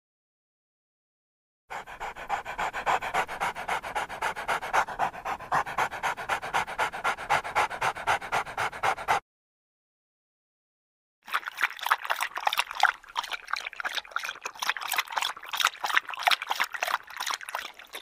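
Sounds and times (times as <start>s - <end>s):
dog panting: 1.7s - 9.2s.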